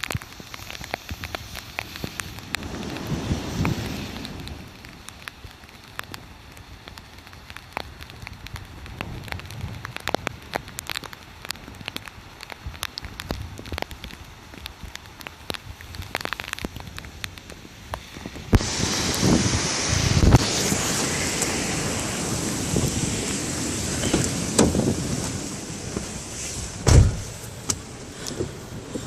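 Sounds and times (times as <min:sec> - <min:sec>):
sharp ticks of raindrops: 0:00.0 - 0:26.8, 0:27.4 - 0:29.0
rain pattering: 0:00.0 - 0:29.0
loud rushing noise: 0:18.6 - 0:27.4.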